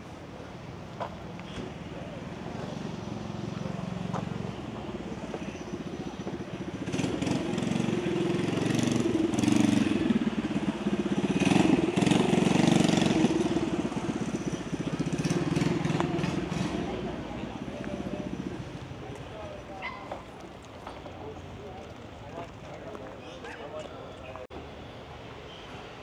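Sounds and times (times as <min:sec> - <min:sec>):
vehicle engine running: 0:02.4 - 0:23.2.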